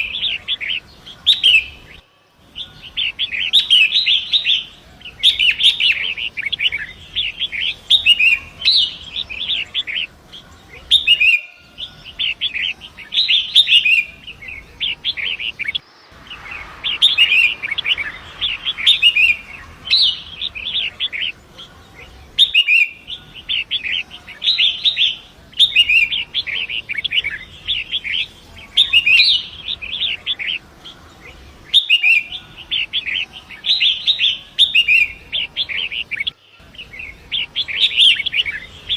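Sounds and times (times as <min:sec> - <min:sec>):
bird singing scratchy song: 0:00.0 - 0:38.9
river water rushing: 0:15.4 - 0:21.7.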